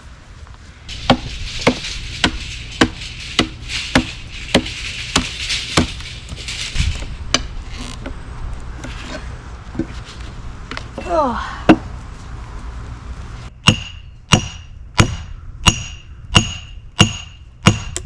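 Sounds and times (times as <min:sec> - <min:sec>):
sledgehammer striking steel wedge: 0:00.9 - 0:06.1, 0:13.6 - 0:18.0.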